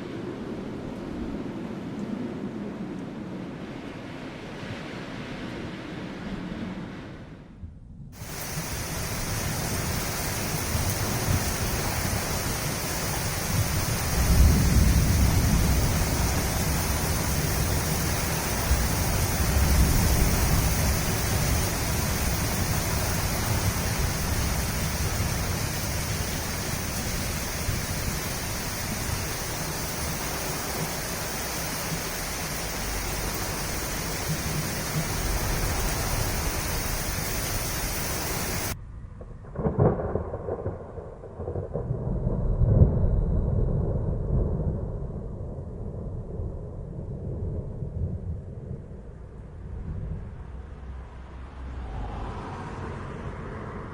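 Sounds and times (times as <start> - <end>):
wind and rain hissing: 0.0 - 53.9
distant thunder rumbling: 8.2 - 50.6.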